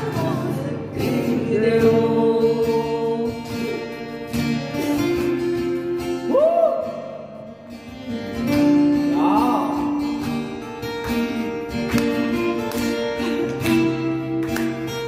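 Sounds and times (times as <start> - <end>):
person singing: 0.0 - 5.2, 8.9 - 10.3
acoustic guitar strumming: 0.0 - 15.0.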